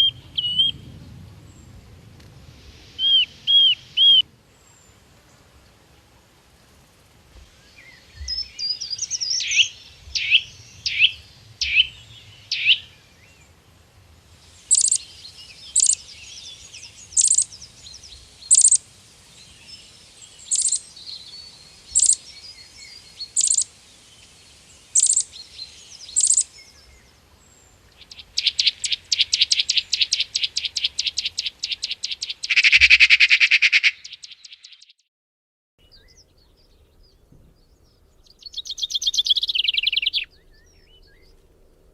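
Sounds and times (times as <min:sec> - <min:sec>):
bird trilling: 0:00.0 - 0:00.8, 0:03.0 - 0:04.2, 0:08.2 - 0:12.9, 0:14.7 - 0:15.0, 0:15.6 - 0:16.1, 0:17.1 - 0:17.6, 0:18.5 - 0:18.8, 0:20.5 - 0:20.8, 0:21.9 - 0:22.3, 0:23.3 - 0:23.7, 0:25.0 - 0:25.3, 0:26.2 - 0:26.5, 0:28.0 - 0:34.8, 0:38.4 - 0:40.4
birds calling: 0:00.0 - 0:01.8, 0:02.8 - 0:05.4, 0:07.4 - 0:13.6, 0:14.4 - 0:34.9, 0:35.8 - 0:41.9.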